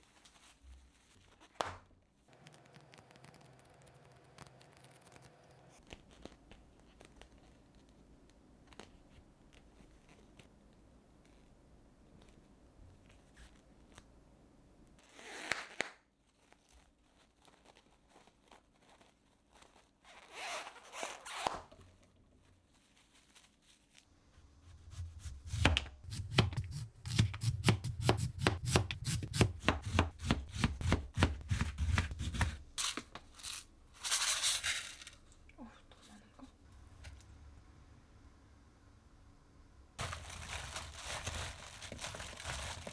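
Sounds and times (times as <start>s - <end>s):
knife chopping on cutting board: 24.9s - 32.6s.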